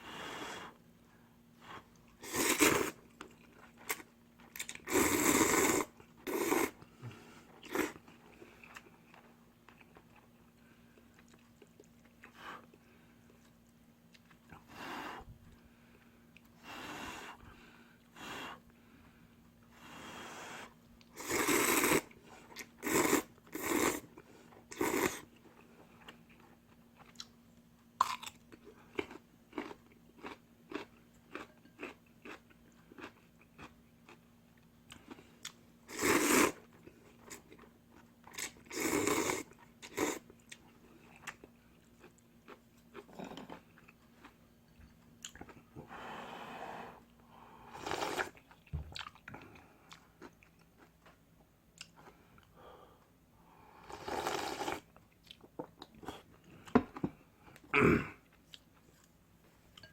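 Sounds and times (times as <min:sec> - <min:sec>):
noodle slurping: 0:02.2 - 0:03.0, 0:21.2 - 0:22.1, 0:35.9 - 0:36.6, 0:47.7 - 0:48.4, 0:53.8 - 0:54.9
wet chewing and crunching: 0:28.0 - 0:35.6, 0:48.4 - 0:51.1.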